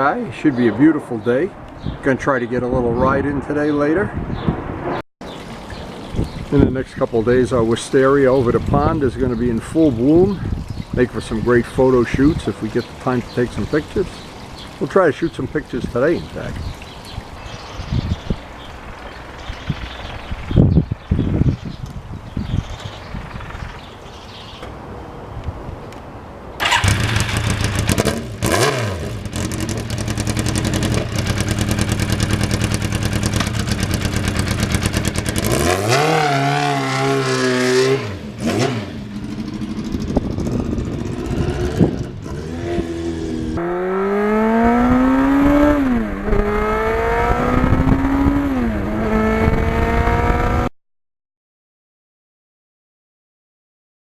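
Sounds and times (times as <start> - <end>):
motorcycle engine revving: 26.6 - 50.7.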